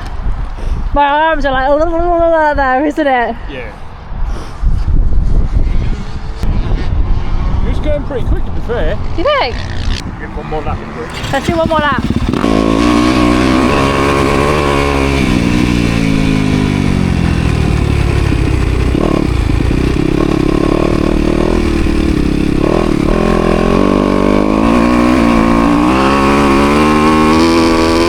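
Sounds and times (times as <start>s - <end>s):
dirt bike engine revving: 8.9s - 28.0s.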